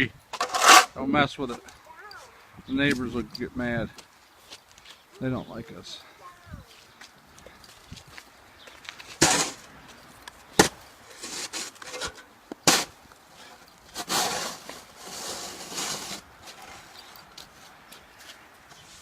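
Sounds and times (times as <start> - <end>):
chainsaw scraping wood: 0.4 - 0.9, 10.6 - 16.9.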